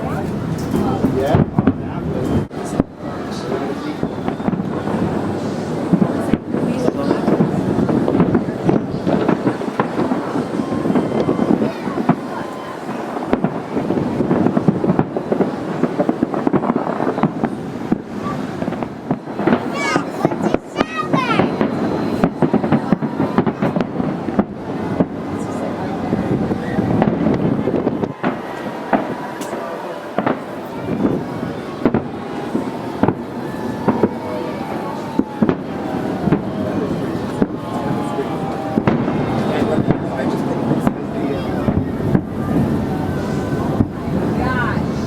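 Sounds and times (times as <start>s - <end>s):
fireworks booming and crackling: 0.0s - 45.0s.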